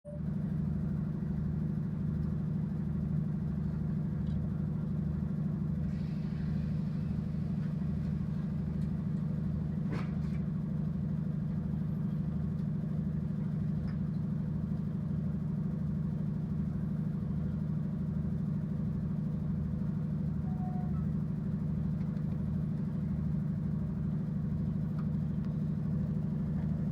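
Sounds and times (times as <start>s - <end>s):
locomotive diesel engine running: 0.0s - 26.9s.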